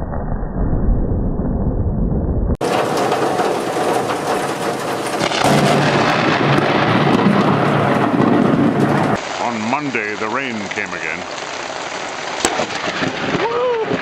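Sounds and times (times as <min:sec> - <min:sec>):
thunder rumbling: 0:00.0 - 0:14.0
heavy rain: 0:02.6 - 0:14.0.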